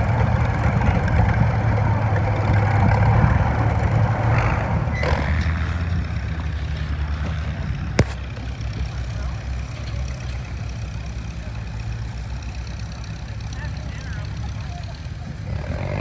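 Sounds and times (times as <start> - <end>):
tractor engine running under load: 0.0 - 15.5
sharp crack: 8.0 - 8.4.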